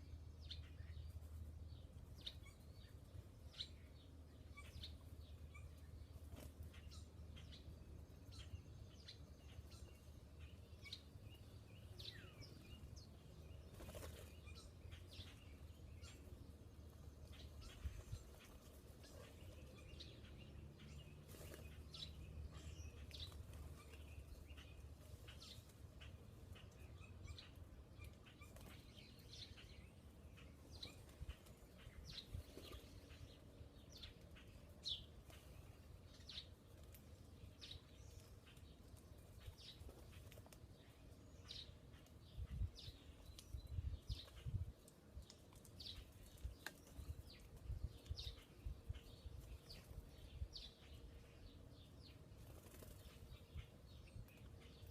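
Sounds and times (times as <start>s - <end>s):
faint bird chirps: 0.0s - 38.6s.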